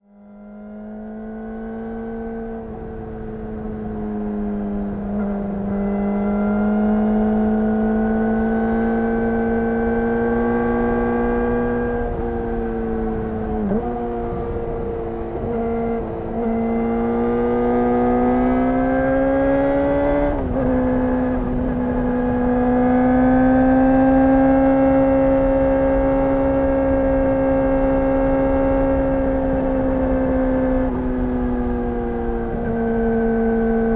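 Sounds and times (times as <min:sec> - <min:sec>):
high-pitched motorcycle engine: 0:13.2 - 0:33.9.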